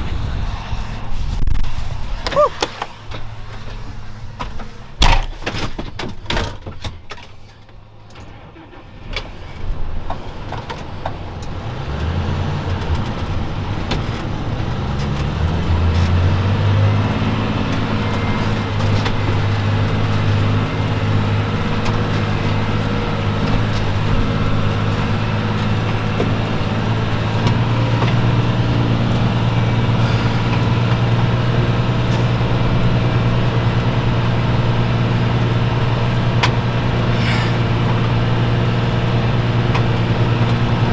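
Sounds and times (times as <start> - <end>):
sharp knocks: 5.0 - 5.8
vehicle engine revving: 10.3 - 40.9.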